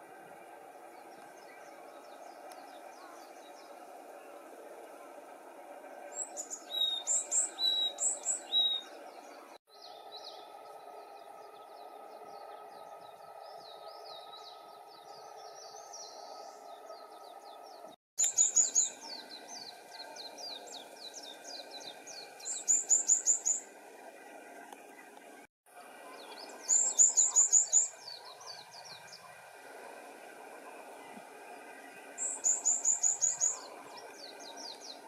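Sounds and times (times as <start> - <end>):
small songbirds singing: 0.0 - 5.1, 5.9 - 29.5, 30.6 - 35.0
steady background hiss: 0.0 - 9.5, 18.2 - 35.0.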